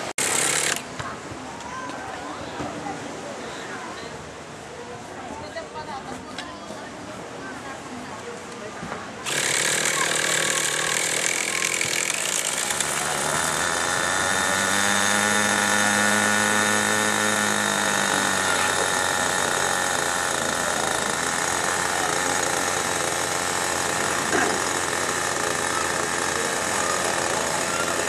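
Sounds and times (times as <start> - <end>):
model helicopter engine: 0.0 - 0.9, 9.2 - 28.0.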